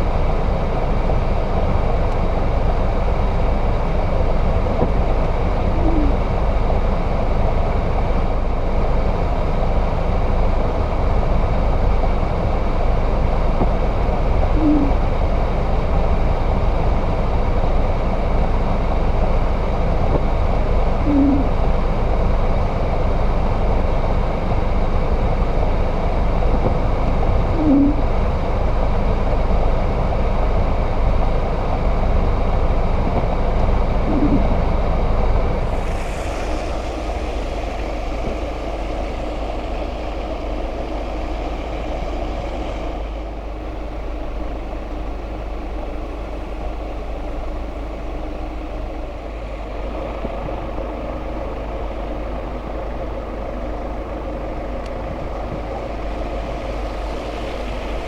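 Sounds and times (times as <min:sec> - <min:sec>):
vehicle engine and road noise: 0:00.0 - 0:58.0
short tonal blips: 0:34.1 - 0:34.6.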